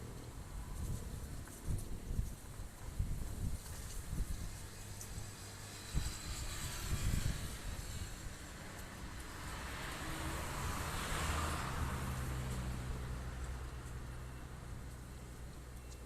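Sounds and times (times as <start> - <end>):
strong wind on microphone: 0.3 - 12.3.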